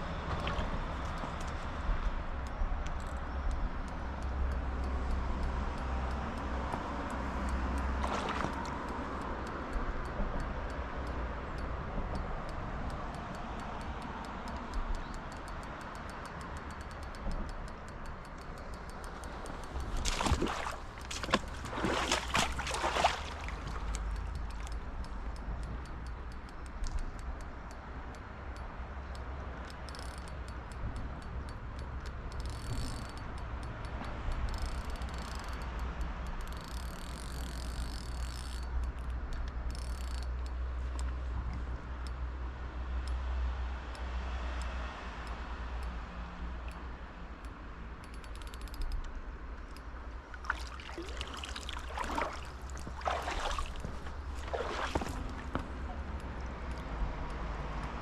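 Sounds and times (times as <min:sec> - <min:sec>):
fishing reel ticking: 0:02.4 - 0:22.2, 0:23.8 - 0:41.1, 0:47.4 - 0:54.9, 0:56.1 - 0:58.0
river flowing: 0:04.6 - 0:09.7, 0:17.8 - 0:25.3, 0:50.1 - 0:58.0
scraping and splashing: 0:08.0 - 0:08.8, 0:19.7 - 0:24.1, 0:50.3 - 0:56.1.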